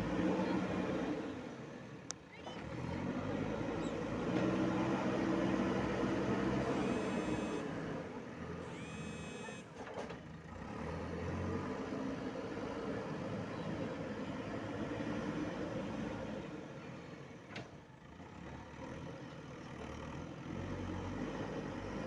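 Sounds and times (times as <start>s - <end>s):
diesel engine under load: 0.0s - 22.0s
high rising whines: 6.7s - 7.6s.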